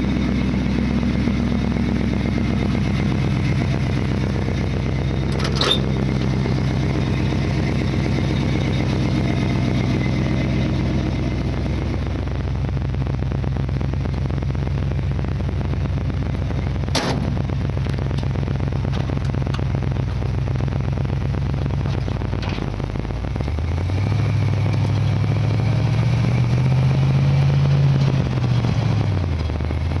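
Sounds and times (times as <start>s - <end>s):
pickup engine idling: 0.0s - 26.2s
engine revving: 0.0s - 30.0s
sharp bang: 16.9s - 17.5s.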